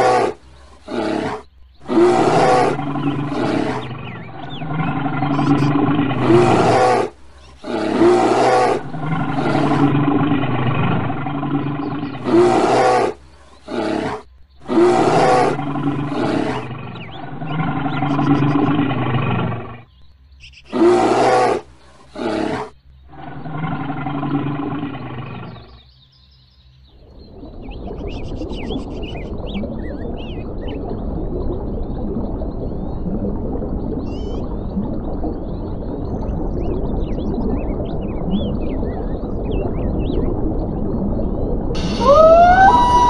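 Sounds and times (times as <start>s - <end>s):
bear roaring and growling: 0.0s - 19.8s, 41.8s - 43.0s.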